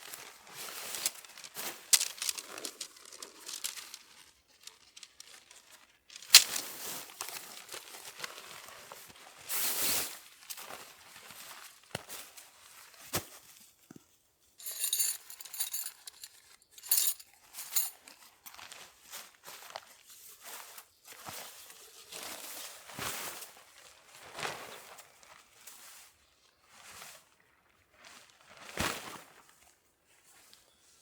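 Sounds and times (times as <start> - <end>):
fabric rustling and crinkling: 0.0 - 13.4
light metallic clinks and jingles: 14.6 - 18.6.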